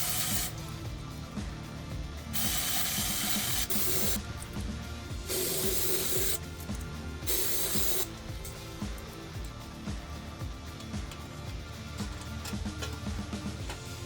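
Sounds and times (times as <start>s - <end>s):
aerosol spray can hissing: 0.0s - 0.6s, 2.4s - 4.6s, 5.2s - 6.4s, 7.2s - 8.2s
background music: 0.0s - 14.0s.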